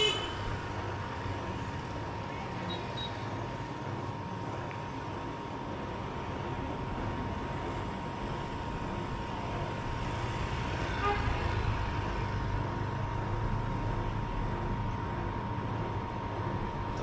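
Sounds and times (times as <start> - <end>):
car horn toot: 0.0 - 0.5
city traffic and road noise: 0.0 - 17.0.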